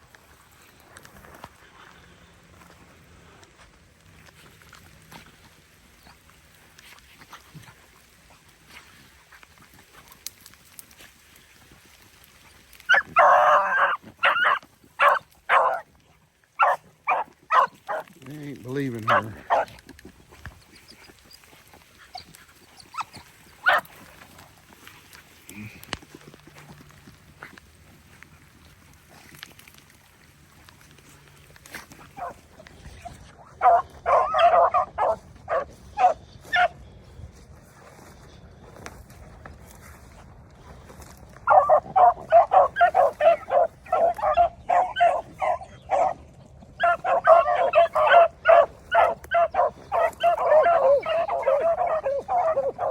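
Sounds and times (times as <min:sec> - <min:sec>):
dog barking: 0:12.9 - 0:15.8, 0:16.6 - 0:18.1, 0:19.0 - 0:19.8, 0:23.0 - 0:23.9, 0:32.2 - 0:32.4, 0:33.6 - 0:36.8, 0:41.4 - 0:46.2, 0:46.8 - 0:52.9
dog baying: 0:12.9 - 0:15.9, 0:16.6 - 0:18.1, 0:19.0 - 0:19.8, 0:32.2 - 0:32.4, 0:33.0 - 0:36.8, 0:41.4 - 0:46.2, 0:46.8 - 0:52.9.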